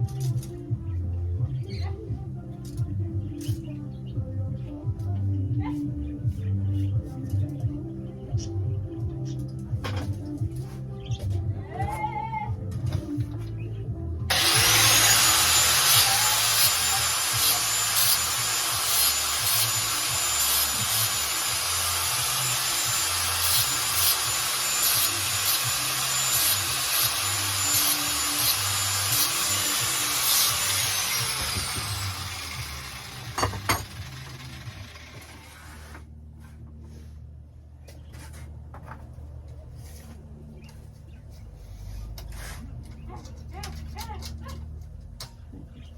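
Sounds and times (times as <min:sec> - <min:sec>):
angle grinder cutting metal: 0:14.3 - 0:35.9.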